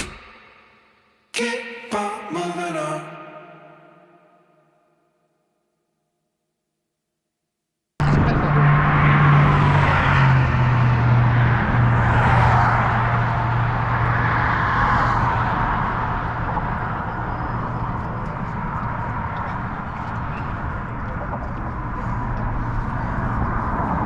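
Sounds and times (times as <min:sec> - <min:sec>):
faint voices: 0:01.4 - 0:04.2.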